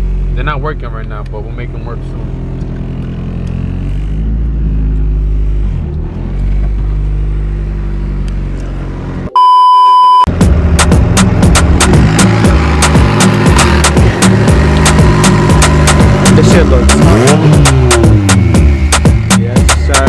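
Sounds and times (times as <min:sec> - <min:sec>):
car engine running: 0:00.0 - 0:09.3, 0:10.3 - 0:20.0
single-pitch beep: 0:09.3 - 0:10.3
music with a sharp beat: 0:10.3 - 0:20.0.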